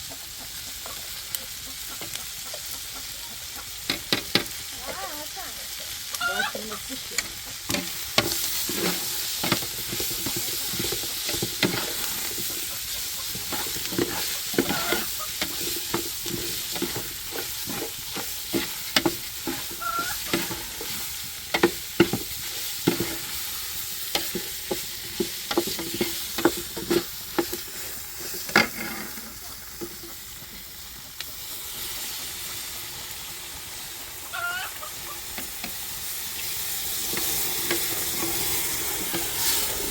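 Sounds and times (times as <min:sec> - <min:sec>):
food sizzling in a pan: 0:00.0 - 0:39.9
utensil scraping a pan: 0:05.8 - 0:30.5, 0:36.4 - 0:39.9.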